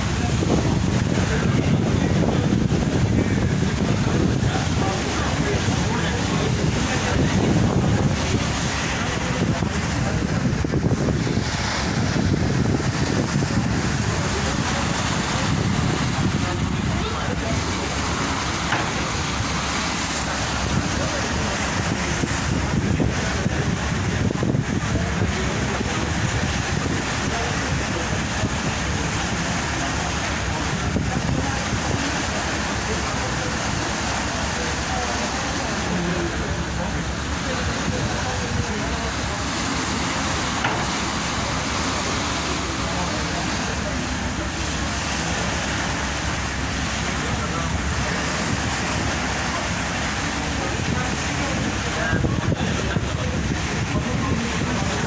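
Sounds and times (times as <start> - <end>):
ship rushing through water: 0.0 - 55.0
wind buffeting microphone: 0.0 - 55.0.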